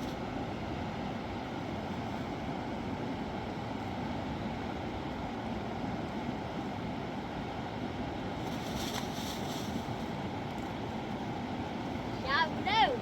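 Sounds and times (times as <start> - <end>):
river water rushing: 10.2 - 13.0.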